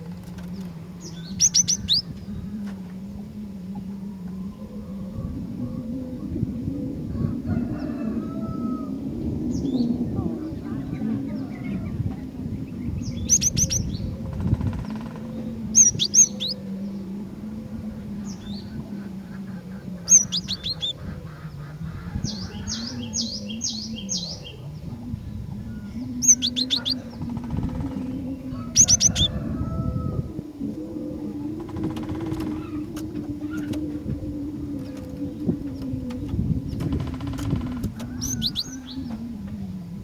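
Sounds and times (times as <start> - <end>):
steady low drone: 0.0 - 40.0
bird chirping: 0.4 - 2.3, 12.6 - 17.1, 19.5 - 29.3, 34.7 - 39.2.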